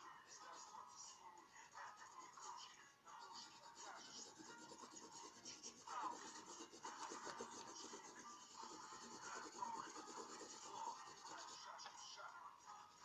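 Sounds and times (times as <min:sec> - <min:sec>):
pencil scratching on paper: 0:03.2 - 0:12.0.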